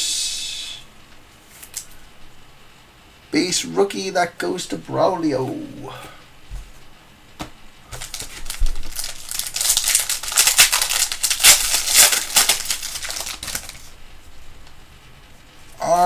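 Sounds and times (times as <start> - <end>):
foil wrapper crinkling: 1.5 - 2.0, 7.9 - 14.0
cards being handled: 7.4 - 13.9.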